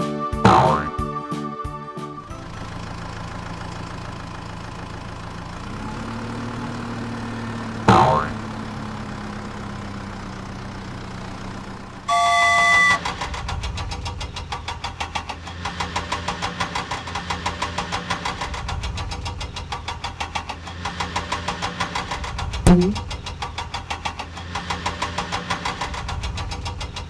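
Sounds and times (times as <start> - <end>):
fast rhythmic engine chug: 2.2 - 13.0
low engine hum: 2.2 - 13.0, 22.7 - 23.4
loud horn-like tone: 12.1 - 13.1.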